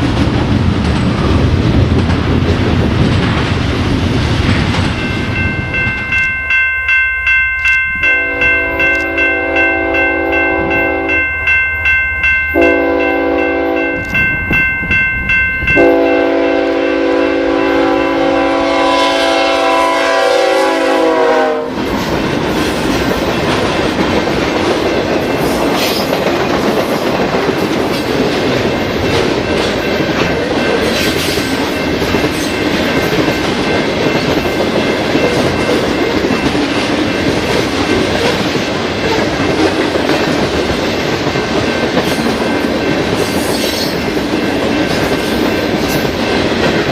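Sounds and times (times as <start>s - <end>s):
train wheel and rail noise: 0.0s - 46.9s
bell ringing: 4.9s - 18.5s, 28.6s - 38.2s
train horn blasts: 8.0s - 11.2s, 12.6s - 14.1s, 15.8s - 21.8s.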